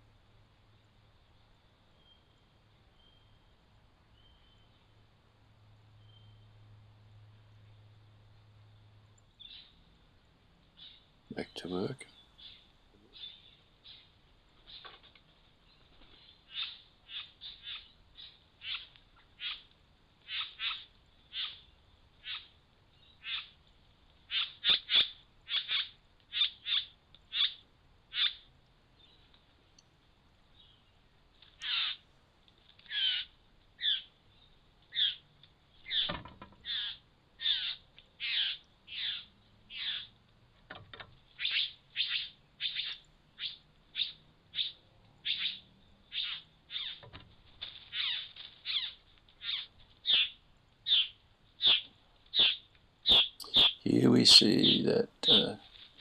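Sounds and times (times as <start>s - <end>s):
bowerbird calling: 31.6s - 32.0s, 32.9s - 34.1s, 35.9s - 40.1s, 41.4s - 47.0s, 52.4s - 55.6s.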